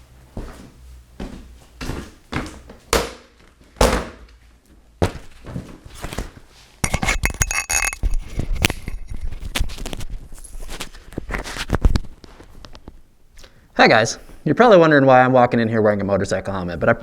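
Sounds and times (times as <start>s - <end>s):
rapid clicks and clinks: 6.8s - 9.1s.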